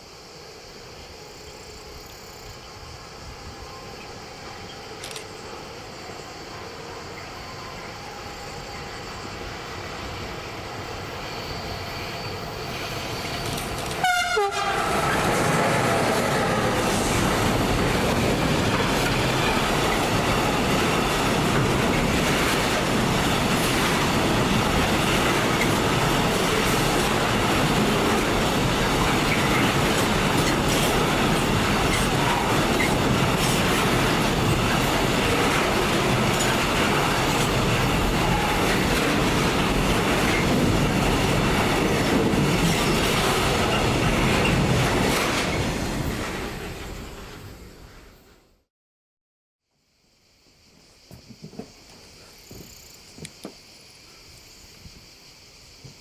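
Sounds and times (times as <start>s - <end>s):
train wheels rumbling on rails: 0.0s - 48.6s, 50.7s - 53.8s
train horn: 13.8s - 16.8s.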